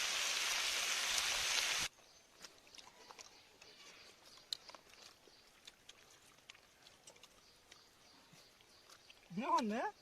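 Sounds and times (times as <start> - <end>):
fish sizzling in hot oil: 0.0 - 1.9.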